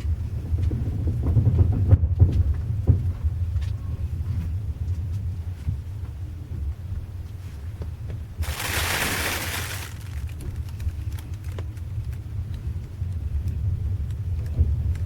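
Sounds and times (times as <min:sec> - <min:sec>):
train rumbling inside carriage: 0:00.0 - 0:15.0
loud hiss: 0:08.4 - 0:10.2.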